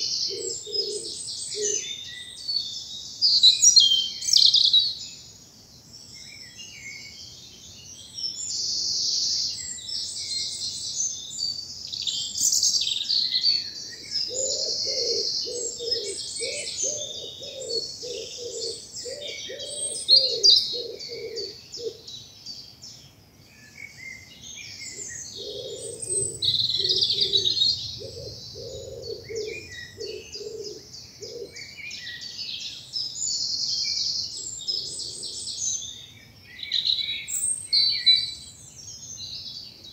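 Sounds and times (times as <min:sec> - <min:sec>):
songbirds singing: 0:00.0 - 0:39.9
lower bird call: 0:12.0 - 0:22.1, 0:24.1 - 0:32.4.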